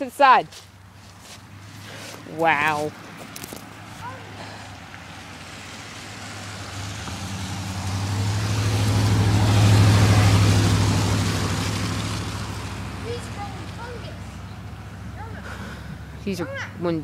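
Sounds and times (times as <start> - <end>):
car driving past: 1.2 - 16.3.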